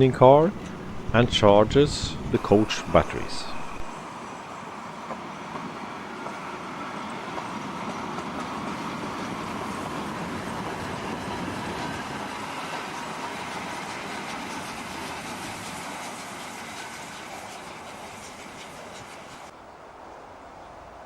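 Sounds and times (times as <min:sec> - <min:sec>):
train wheels rolling on rails: 0:00.0 - 0:21.0.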